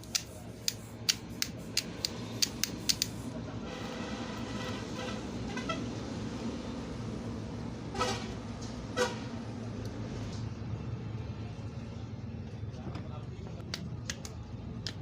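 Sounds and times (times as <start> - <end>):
vehicle horn toots: 3.6 - 5.9, 7.9 - 9.3.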